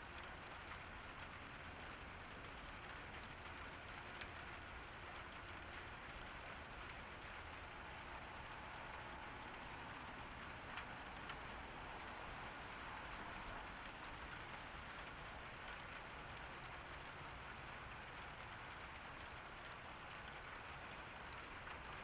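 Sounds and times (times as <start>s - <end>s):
rain hissing: 6.2s - 21.9s.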